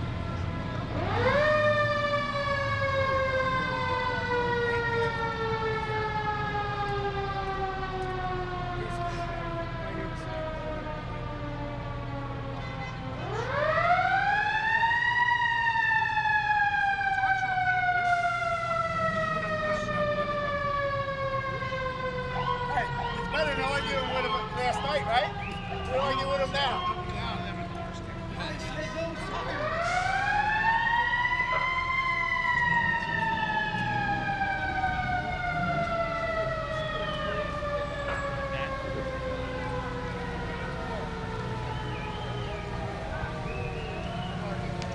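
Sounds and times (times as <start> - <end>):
low engine rumble: 0.0 - 14.2
fire engine siren winding: 13.2 - 44.9.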